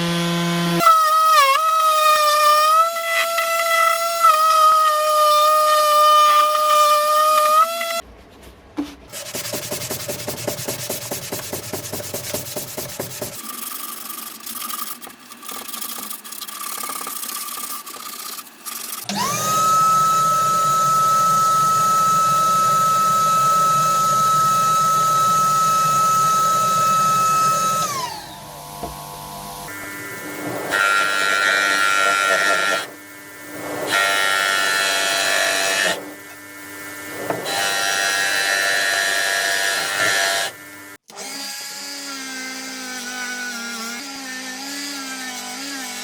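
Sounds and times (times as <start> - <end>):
rubbing strokes on wood: 9.1 - 18.8
power tool motor whining: 15.0 - 46.0.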